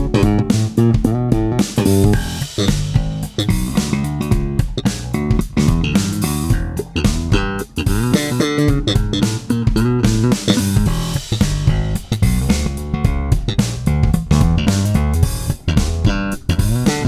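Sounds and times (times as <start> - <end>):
electric bass guitar solo: 0.0 - 17.0.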